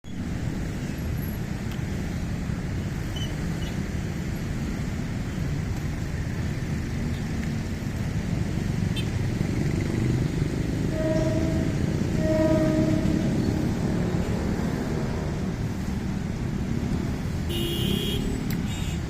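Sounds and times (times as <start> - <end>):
road traffic hum: 0.0 - 19.0.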